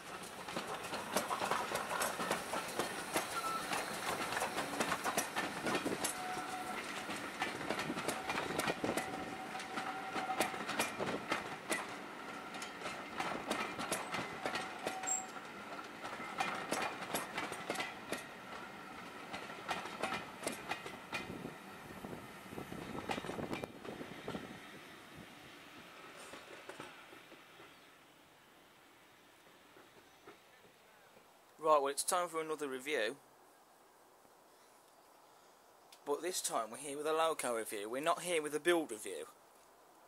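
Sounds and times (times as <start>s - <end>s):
train wheels clattering over rail joints: 0.0s - 24.5s, 25.8s - 27.9s
thin wheel squeal: 3.3s - 4.0s, 14.9s - 15.4s.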